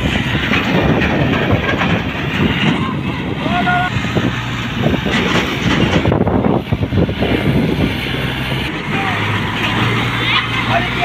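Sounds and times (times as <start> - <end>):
rattling clatter: 0.0 - 3.4, 4.2 - 7.5
tractor diesel engines running hard: 0.0 - 11.0.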